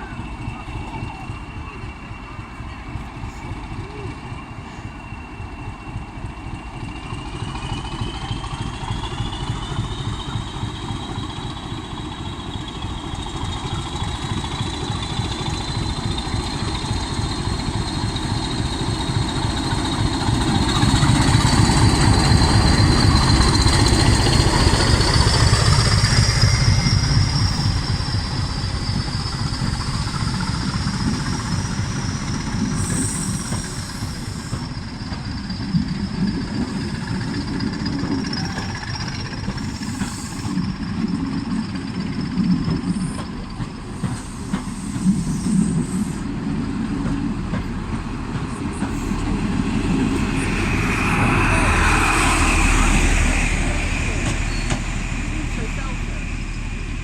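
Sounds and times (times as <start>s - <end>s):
diesel train engine rumble: 0.0s - 57.0s
high whine rising in pitch: 49.1s - 57.0s.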